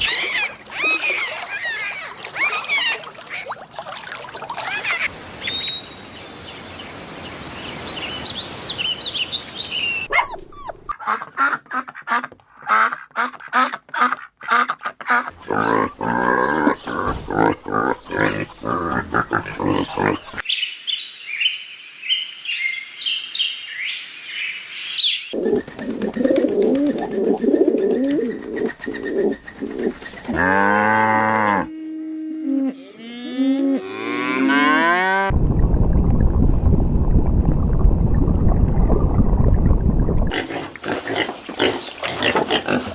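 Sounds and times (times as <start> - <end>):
high bird chirps: 4.7 - 6.2
cow mooing: 30.3 - 35.3.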